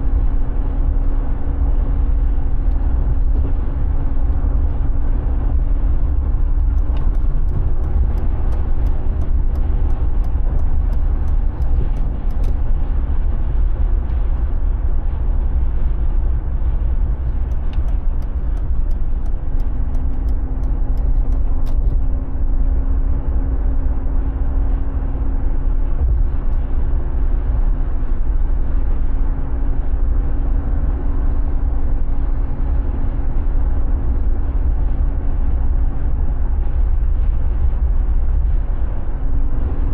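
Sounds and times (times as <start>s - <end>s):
car engine rumbling: 0.0s - 39.9s
light evenly spaced ticks: 6.6s - 12.6s, 17.2s - 21.9s.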